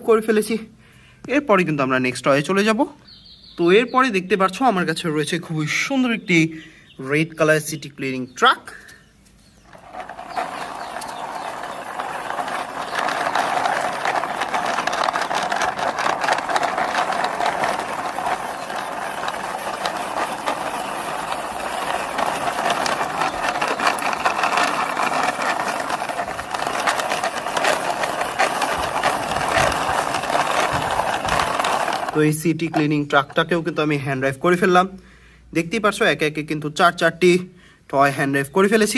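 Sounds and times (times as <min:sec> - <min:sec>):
toy truck wheels rattling: 0:09.4 - 0:33.9.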